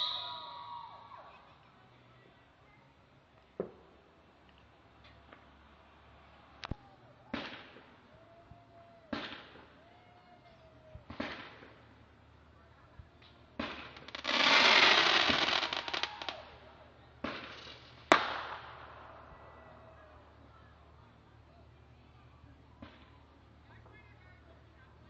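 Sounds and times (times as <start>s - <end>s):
fireworks bangs: 7.3s - 8.0s, 9.1s - 9.7s, 11.0s - 12.0s, 13.6s - 16.4s, 17.2s - 19.2s
fireworks crackling: 9.1s - 9.8s, 11.0s - 12.1s, 13.2s - 19.3s.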